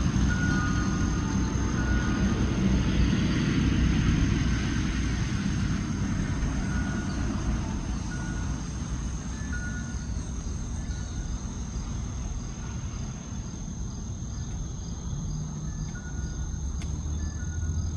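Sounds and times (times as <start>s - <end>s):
high-pitched insect trill: 0.0s - 17.9s.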